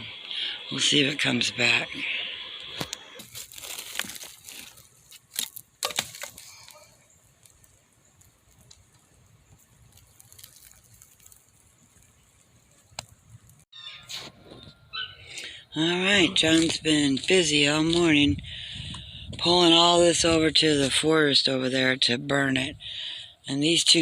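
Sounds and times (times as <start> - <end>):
faint outdoor hiss: 0.0 - 13.7, 15.3 - 24.0
twigs crunching: 2.6 - 13.6.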